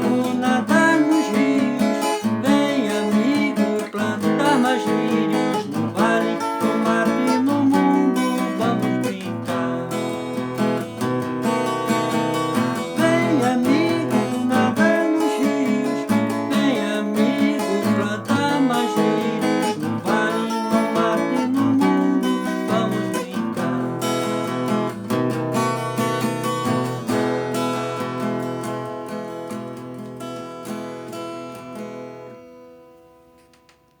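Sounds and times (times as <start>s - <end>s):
acoustic guitar strumming: 0.0s - 33.8s.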